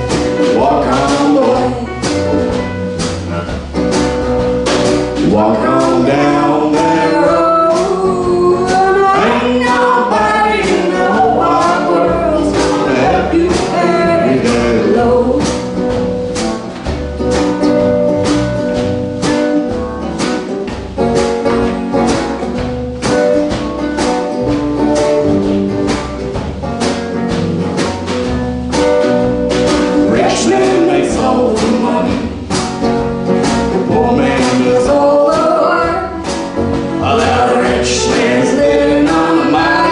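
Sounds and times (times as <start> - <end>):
strummed guitar: 0.0 - 39.9
person singing: 0.4 - 2.2, 5.2 - 15.5, 30.0 - 32.4, 33.8 - 36.2, 37.0 - 39.9.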